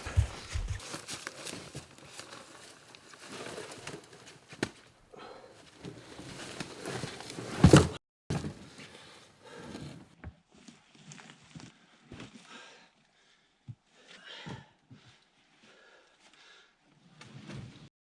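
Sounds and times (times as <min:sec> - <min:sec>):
heavy thump: 0:00.0 - 0:00.8
rustling: 0:00.0 - 0:04.9, 0:05.6 - 0:10.0.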